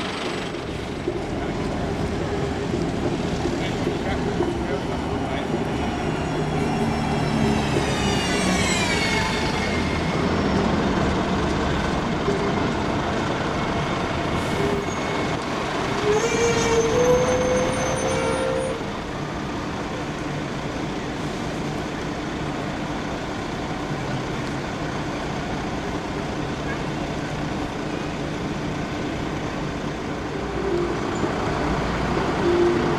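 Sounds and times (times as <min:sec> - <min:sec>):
buses and trams running past: 0:00.0 - 0:32.9
rising tone: 0:06.1 - 0:11.1, 0:30.2 - 0:32.9.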